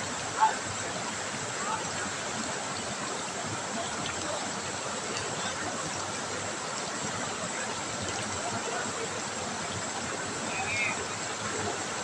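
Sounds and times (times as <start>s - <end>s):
river babbling over stones: 0.0s - 12.0s.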